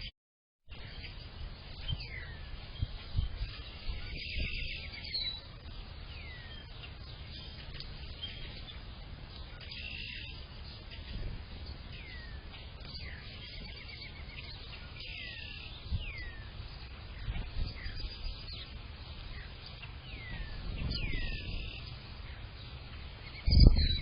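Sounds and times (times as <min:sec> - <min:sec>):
buzzy bird trills: 0:00.7 - 0:24.0
wind rumble: 0:00.7 - 0:24.0
bird whistle: 0:20.2 - 0:21.9, 0:23.3 - 0:24.0.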